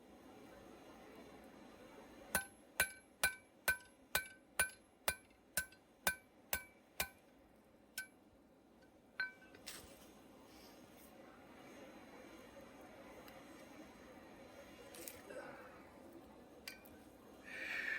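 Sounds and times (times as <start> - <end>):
hammer striking metal anvil: 2.4 - 7.2, 9.2 - 9.5.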